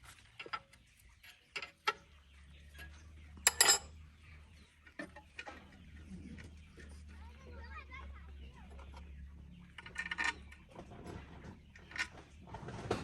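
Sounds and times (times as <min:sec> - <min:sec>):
metal tools clinking: 0:02.8 - 0:03.9.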